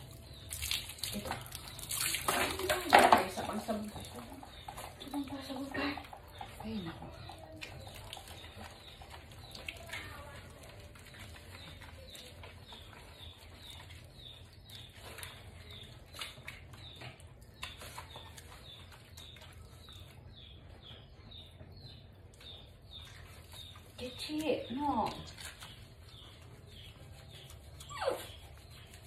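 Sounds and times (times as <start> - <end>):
water splashing: 0.0 - 4.4
wet rubbing of dog fur: 0.0 - 20.3, 22.3 - 29.0.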